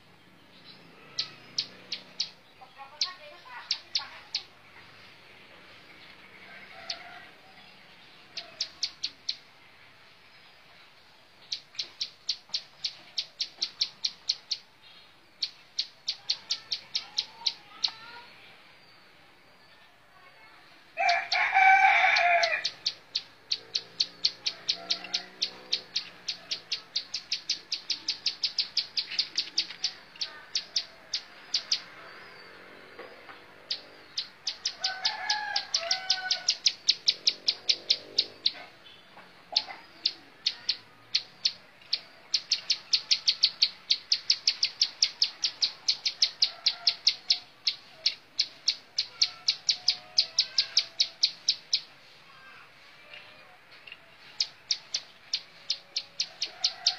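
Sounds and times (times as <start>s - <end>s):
bird singing sharp repeated notes: 0.1s - 4.7s, 8.1s - 9.6s, 11.4s - 18.3s, 22.1s - 52.1s, 54.2s - 56.9s
lower bird calls: 21.0s - 56.9s.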